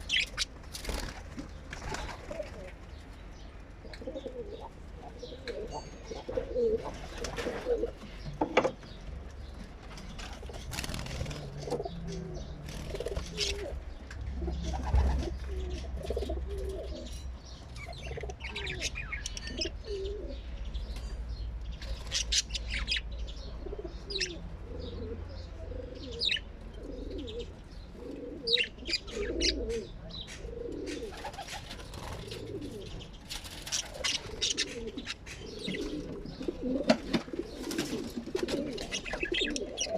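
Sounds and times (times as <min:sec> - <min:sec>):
bird cooing: 0:02.0 - 0:02.8, 0:03.8 - 0:08.2, 0:10.9 - 0:17.2, 0:17.8 - 0:20.5, 0:23.4 - 0:31.5, 0:32.1 - 0:33.0, 0:33.8 - 0:39.9.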